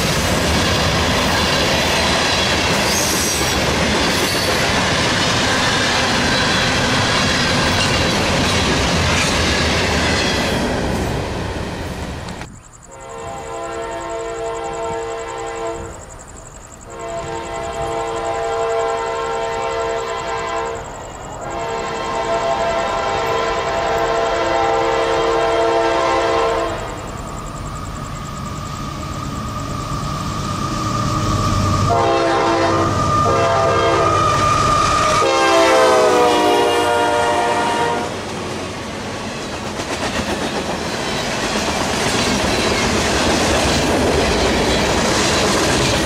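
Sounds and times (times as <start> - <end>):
freight cars clickety-clack: 0.0 - 12.6, 38.2 - 46.0
locomotive air horn blasts: 12.9 - 16.0, 16.9 - 20.8, 21.4 - 26.8, 31.9 - 34.5, 35.2 - 38.2.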